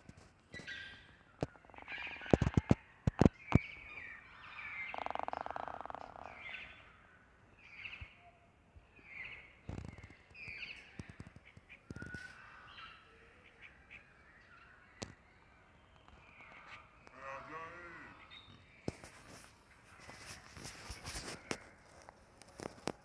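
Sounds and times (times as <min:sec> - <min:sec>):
birds calling: 0:00.1 - 0:08.4.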